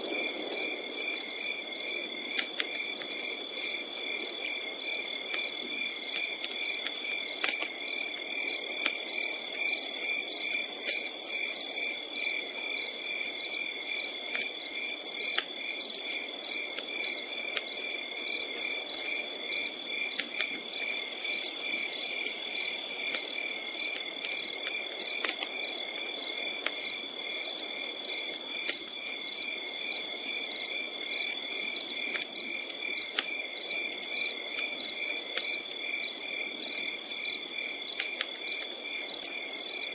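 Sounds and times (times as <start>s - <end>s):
campfire crackling: 0.0s - 39.9s
crickets chirping: 0.0s - 39.9s
high insect trill: 13.4s - 27.3s.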